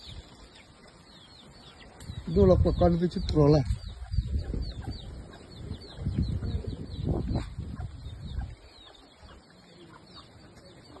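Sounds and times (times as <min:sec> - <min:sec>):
bird chirping: 0:00.0 - 0:11.0
low microphone rumble: 0:02.0 - 0:08.8.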